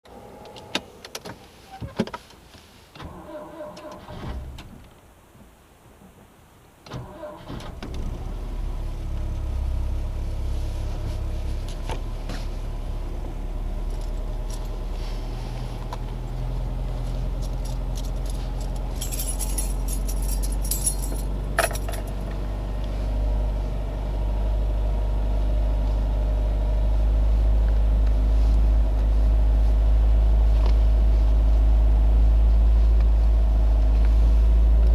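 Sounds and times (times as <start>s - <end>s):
car engine rumbling: 0.0s - 34.9s
keys jangling and clicking: 17.4s - 22.2s.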